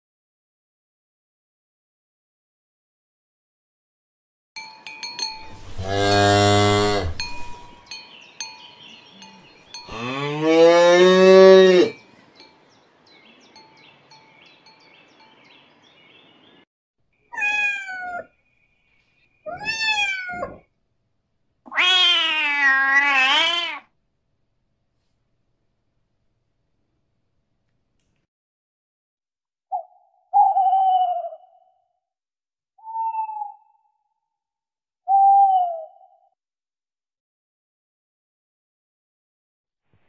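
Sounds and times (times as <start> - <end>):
cattle mooing: 5.6 - 7.7, 9.9 - 12.0
cat meowing: 17.3 - 18.3, 19.4 - 20.7, 21.7 - 23.9.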